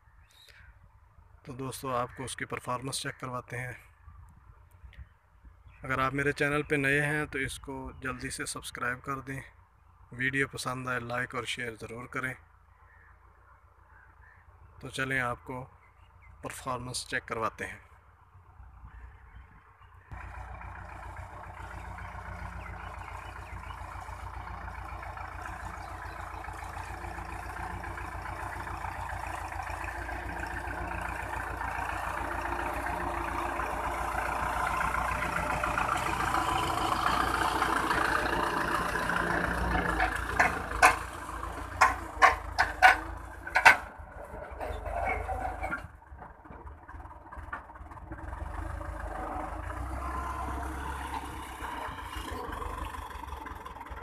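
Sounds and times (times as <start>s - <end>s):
tractor diesel engine running: 20.0s - 54.0s.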